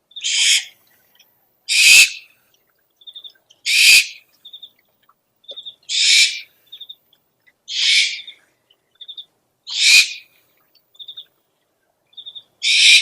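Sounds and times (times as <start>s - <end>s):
owl hissing screeches: 0.2s - 0.7s, 1.7s - 2.2s, 3.7s - 4.2s, 5.9s - 6.5s, 7.7s - 8.3s, 9.7s - 10.3s, 12.6s - 13.0s.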